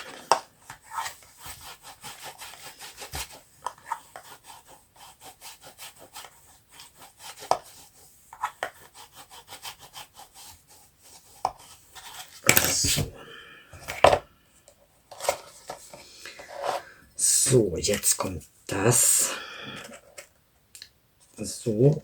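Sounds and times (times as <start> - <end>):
rubbing and scraping strokes: 0.0 - 13.2, 15.1 - 18.2.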